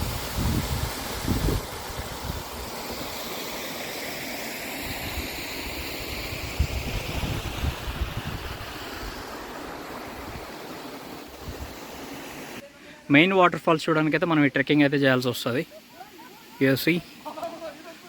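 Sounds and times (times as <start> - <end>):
wind buffeting microphone: 0.0 - 2.7, 6.3 - 9.3
water rushing: 0.0 - 18.0.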